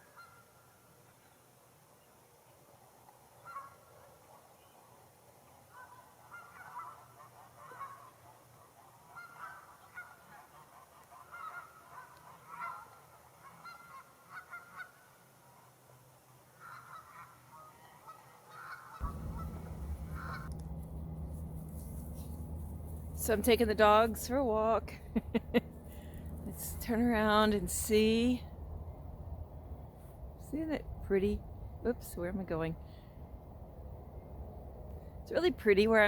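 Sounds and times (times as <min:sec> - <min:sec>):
geese honking: 0:05.7 - 0:08.2, 0:09.1 - 0:15.0, 0:16.6 - 0:28.4
steady low rumble: 0:19.0 - 0:36.0.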